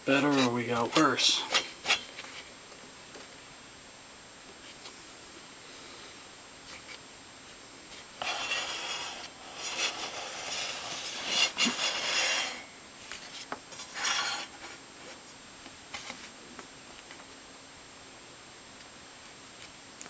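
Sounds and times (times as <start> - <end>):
scraping and rubbing on saw: 0.1 - 2.4, 8.2 - 14.8.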